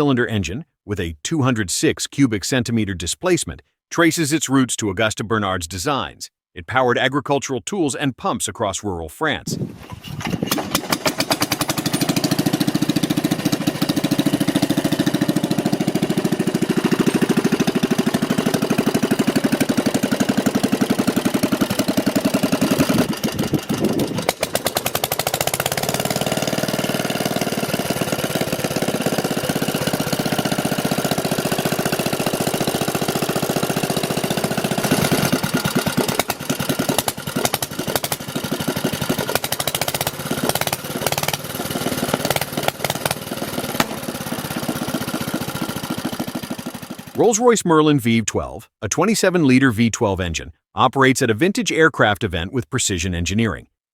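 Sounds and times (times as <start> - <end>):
single-cylinder engine running: 10.4 - 47.2.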